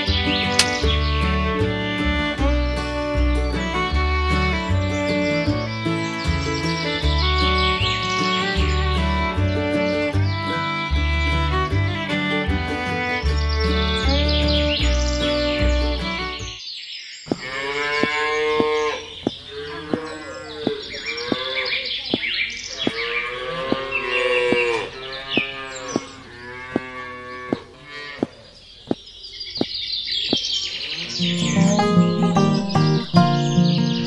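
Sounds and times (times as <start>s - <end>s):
sharp clicks: 0.6s - 0.8s
cows mooing: 17.3s - 21.7s, 22.8s - 28.3s.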